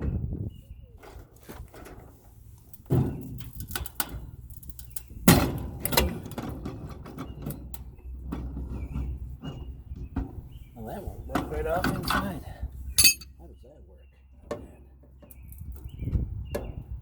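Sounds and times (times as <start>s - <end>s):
metal clanks of hand tools: 13.0s - 13.2s.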